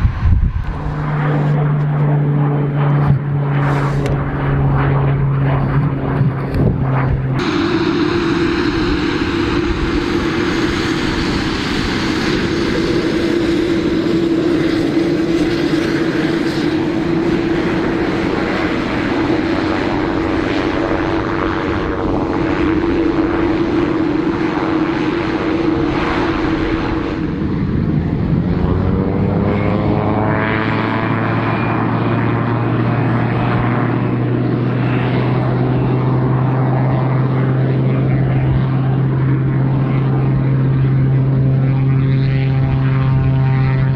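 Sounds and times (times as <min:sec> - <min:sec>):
propeller aircraft engine droning: 0:00.0 - 0:43.9.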